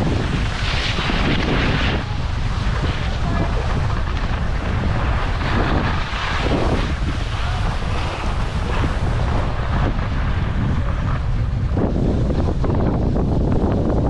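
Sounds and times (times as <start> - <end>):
skis sliding over snow: 0.0 - 14.0
wind rushing over microphone: 0.0 - 14.0.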